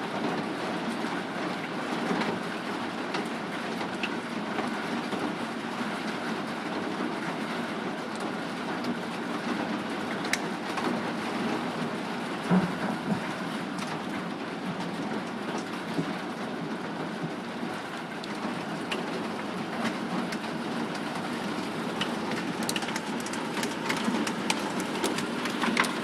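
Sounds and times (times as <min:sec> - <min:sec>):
hail clattering on surfaces: 0:00.2 - 0:26.0
sharp clicks of single hailstones: 0:18.2 - 0:26.0.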